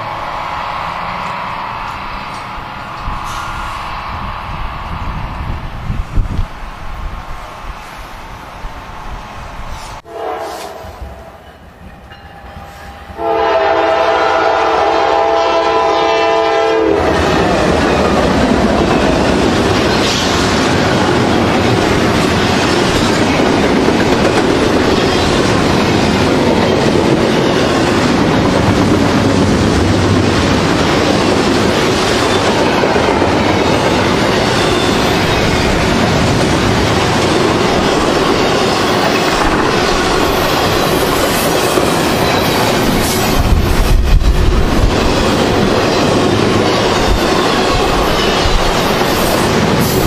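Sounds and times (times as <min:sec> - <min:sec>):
train wheels rumbling and clacking: 0:00.0 - 0:50.0
locomotive horn blast: 0:10.0 - 0:11.4, 0:12.7 - 0:17.4
locomotives passing: 0:10.8 - 0:50.0.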